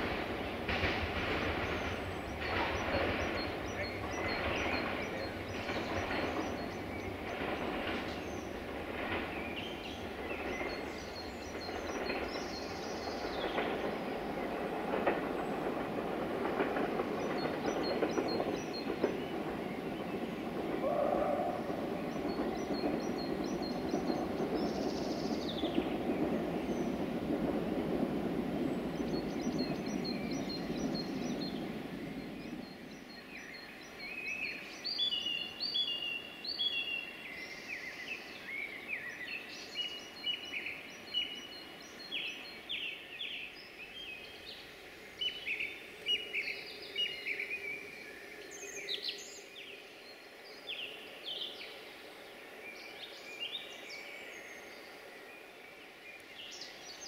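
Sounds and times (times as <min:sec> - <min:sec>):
wheels clicking over rail joints: 0:00.0 - 0:33.6
train rumbling: 0:00.0 - 0:57.0.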